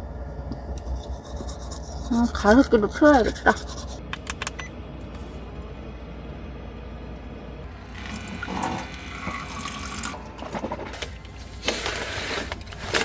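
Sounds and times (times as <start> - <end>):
low hum: 0.0 - 11.6.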